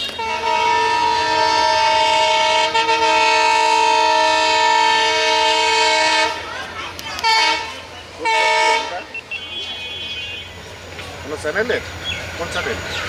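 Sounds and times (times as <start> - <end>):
locomotive horn blast: 0.0 - 6.4, 7.2 - 10.6
train running noise: 0.0 - 13.0.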